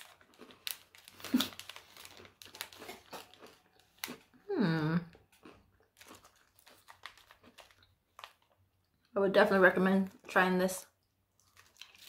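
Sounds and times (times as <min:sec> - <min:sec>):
crunchy biscuit chewing: 0:00.0 - 0:09.1, 0:11.0 - 0:12.0.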